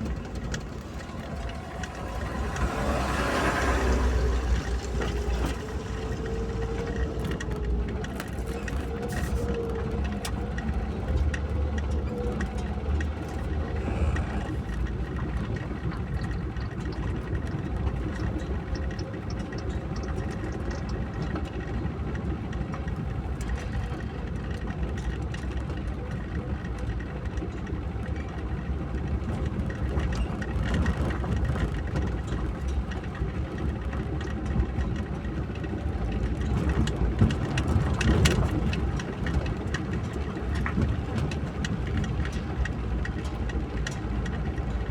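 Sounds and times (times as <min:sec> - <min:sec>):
rain and wet tyres hissing: 0:00.0 - 0:09.6
car engine and road rumble: 0:00.0 - 0:44.9.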